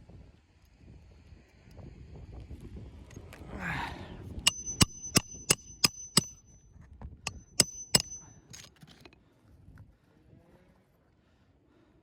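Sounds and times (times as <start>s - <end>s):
hammer striking metal: 4.5s - 6.6s, 7.3s - 8.7s.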